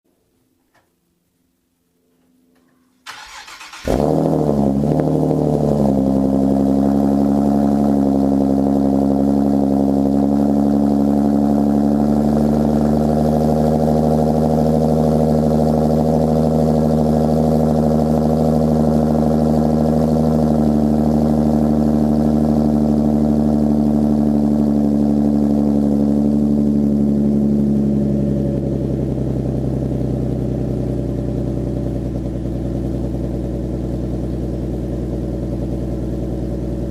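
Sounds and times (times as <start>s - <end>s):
car engine cranking: 3.0s - 4.6s
car engine fast idle: 3.1s - 4.4s.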